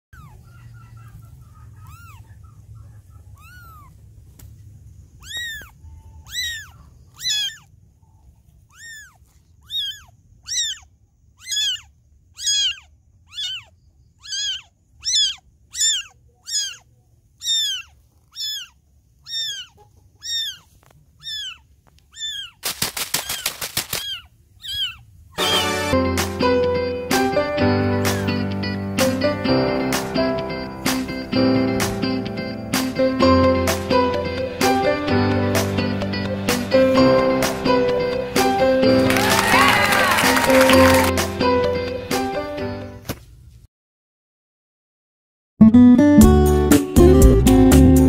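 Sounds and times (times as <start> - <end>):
kitten mewing: 0.2 - 0.4, 1.7 - 2.4, 3.2 - 4.0, 5.2 - 7.7, 8.6 - 22.6, 23.2 - 25.7
rustling noise: 17.5 - 25.0.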